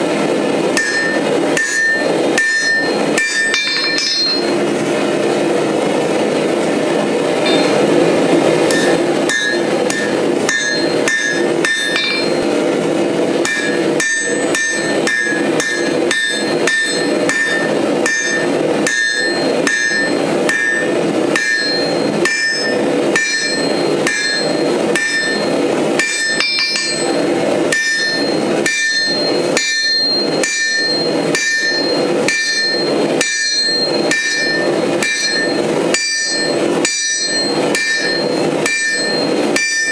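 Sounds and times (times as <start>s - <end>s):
hammer striking steel on anvil: 0.0s - 5.0s, 7.3s - 39.9s
steady rushing noise: 0.0s - 39.9s.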